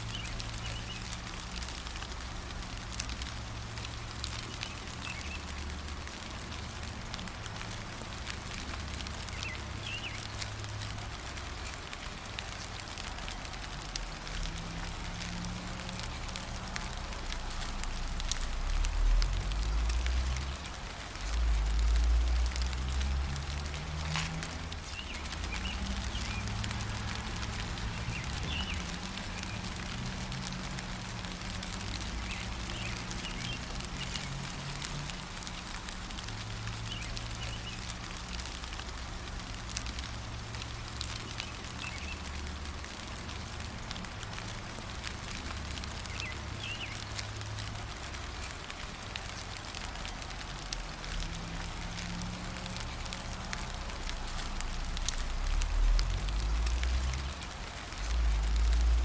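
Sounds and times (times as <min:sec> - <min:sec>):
gentle rain pattering: 0:00.0 - 0:59.0
bird chirps: 0:00.1 - 0:01.1, 0:09.3 - 0:10.3.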